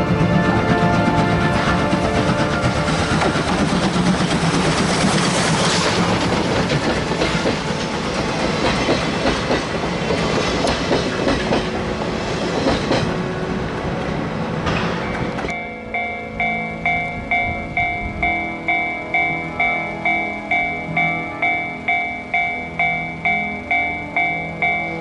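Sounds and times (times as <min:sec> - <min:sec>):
train wheels clacking over rail joints: 0:00.0 - 0:13.2
loud train running noise: 0:00.0 - 0:25.0.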